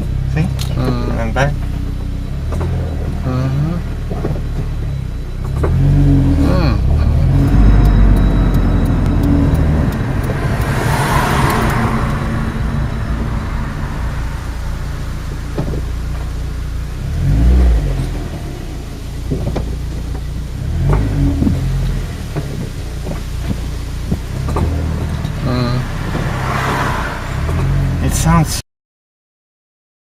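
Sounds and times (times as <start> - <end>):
car engine running: 0.0 - 28.6
light fast ticking: 1.6 - 17.6.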